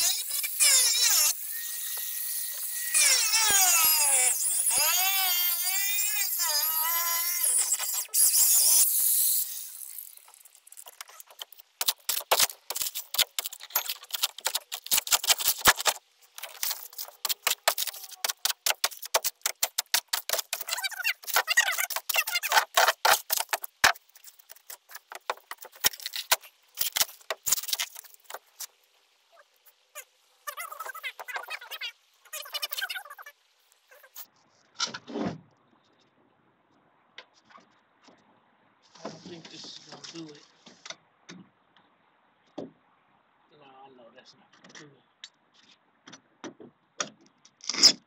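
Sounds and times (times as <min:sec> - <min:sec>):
plywood cracking and scraping: 0:10.2 - 0:28.7.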